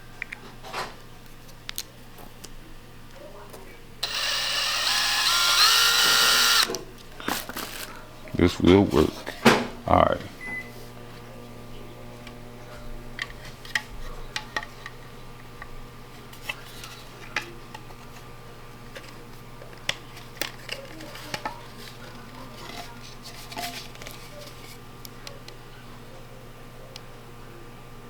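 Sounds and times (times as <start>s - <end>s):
low electrical hum: 0.0s - 28.0s
small parts clicking and tapping: 4.0s - 6.8s.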